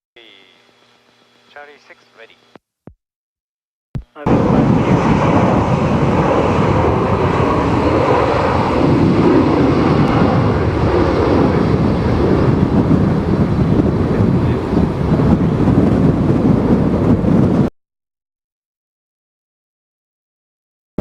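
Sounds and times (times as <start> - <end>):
strong wind buffeting microphone: 4.3 - 17.7.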